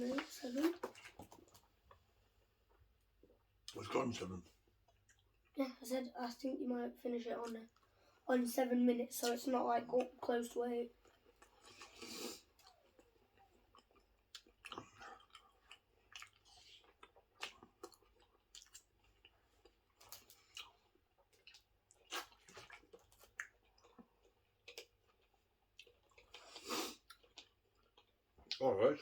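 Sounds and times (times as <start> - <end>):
person chewing food: 4.7 - 5.6, 11.0 - 28.6.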